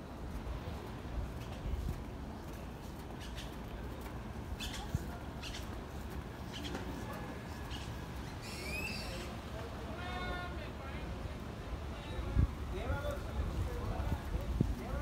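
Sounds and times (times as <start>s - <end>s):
birds chirping: 2.9s - 9.4s.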